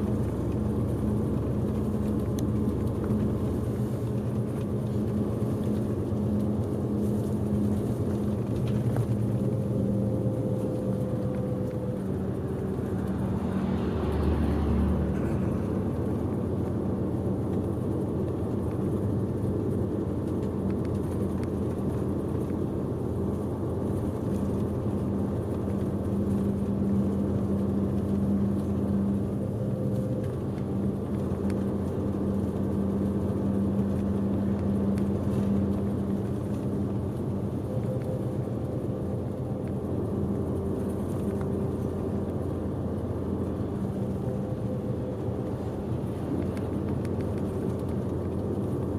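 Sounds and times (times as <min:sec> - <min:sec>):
bus engine hum: 0:00.0 - 0:48.9
road and tyre noise: 0:00.0 - 0:48.9.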